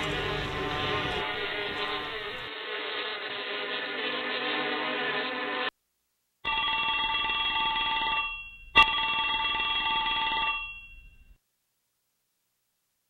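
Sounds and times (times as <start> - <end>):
telephone ringing: 6.5 - 11.4.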